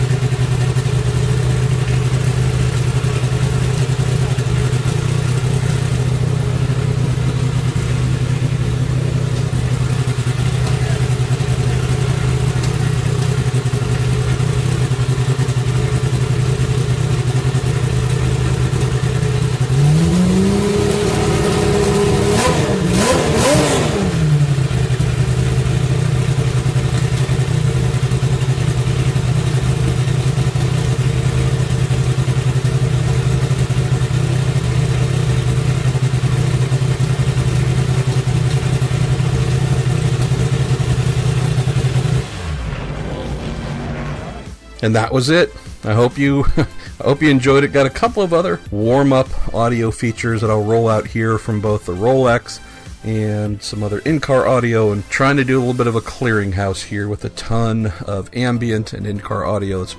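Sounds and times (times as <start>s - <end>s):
racing engine idling and revving: 0.0s - 44.8s, 45.6s - 48.7s.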